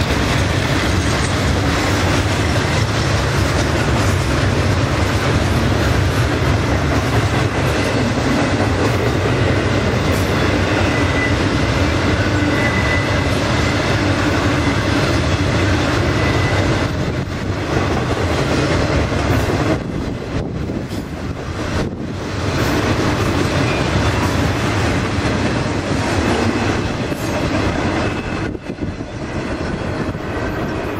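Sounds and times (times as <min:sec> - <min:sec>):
freight train rumbling past: 0:00.0 - 0:30.9
wheels clacking over rail joints: 0:00.0 - 0:30.9
faint wheel squeal: 0:12.3 - 0:13.2.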